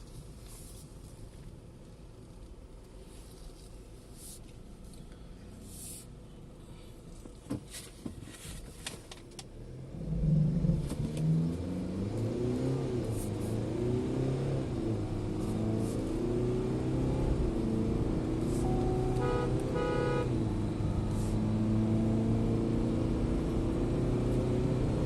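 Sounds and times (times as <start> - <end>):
diesel engine accelerating hard: 9.6 - 25.0.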